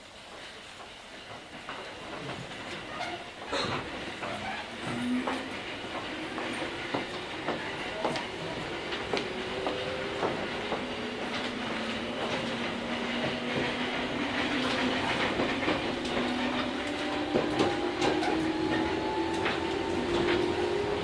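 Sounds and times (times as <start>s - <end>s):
wheels clicking over rail joints: 0.3s - 21.0s
electric train motor whine: 4.7s - 21.0s.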